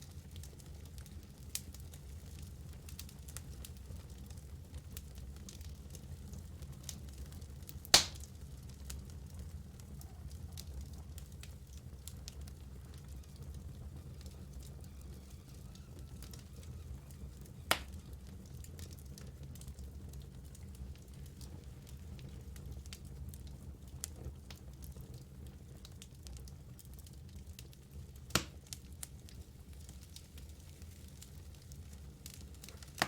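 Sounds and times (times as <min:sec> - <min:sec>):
fire crackling: 0:00.0 - 0:33.0
logs burning in fireplace: 0:00.0 - 0:33.0
sharp wood pops: 0:08.0 - 0:08.2.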